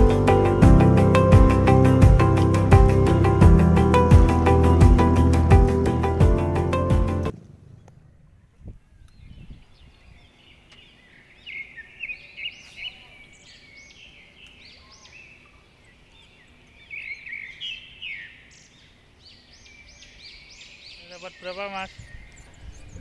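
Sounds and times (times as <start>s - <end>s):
faint outdoor background noise: 7.3s - 23.0s
small birds chirping: 7.7s - 23.0s.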